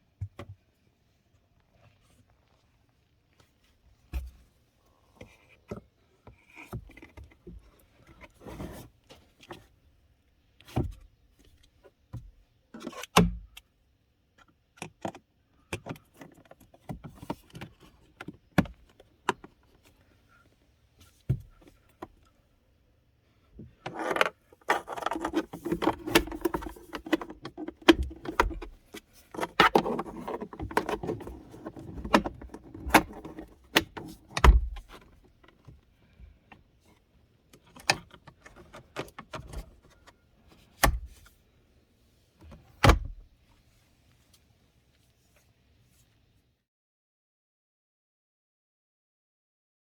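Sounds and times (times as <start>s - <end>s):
filter rattling and scraping in housing: 23.7s - 35.7s
plastic parts clicking and knocking: 23.8s - 35.7s.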